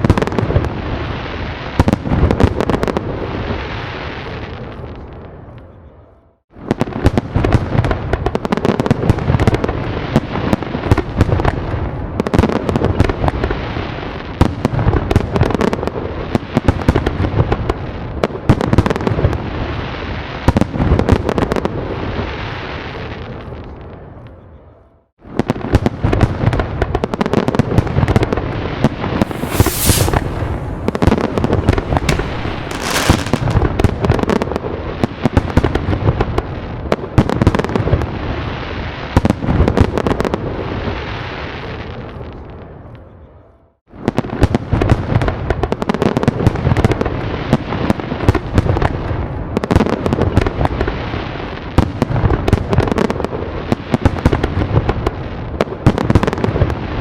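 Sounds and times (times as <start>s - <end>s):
fireworks bangs and crackling: 0.0s - 5.6s, 6.5s - 24.1s, 25.2s - 42.8s, 43.9s - 57.0s
sharp hissing bursts: 29.2s - 33.7s.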